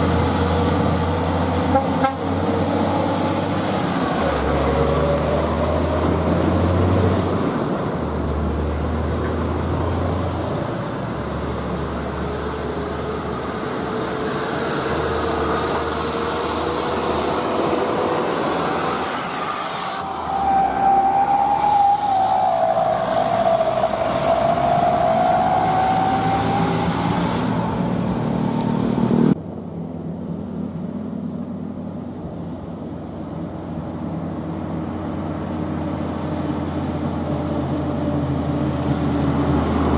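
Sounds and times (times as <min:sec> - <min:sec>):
diesel trucks on road: 0:00.0 - 0:39.9
wavering pitched whine: 0:14.7 - 0:29.1.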